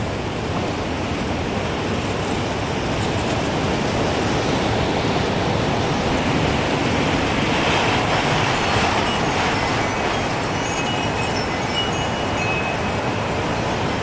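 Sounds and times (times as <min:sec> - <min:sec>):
strong wind rushing: 0:01.8 - 0:14.0
wind chimes tinkling: 0:07.8 - 0:14.0.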